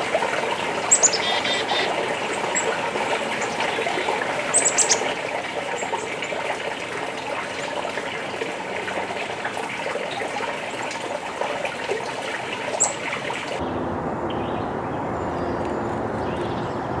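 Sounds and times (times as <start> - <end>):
running water: 0.0 - 13.6.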